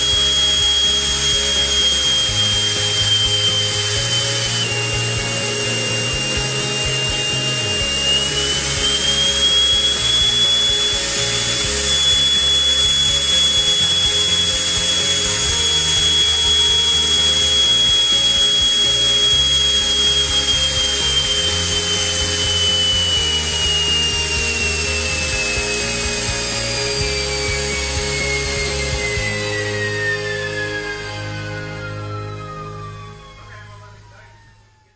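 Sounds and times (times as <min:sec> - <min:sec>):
background music with bass line: 0:00.0 - 0:34.3
small jet engine whining: 0:00.0 - 0:34.9.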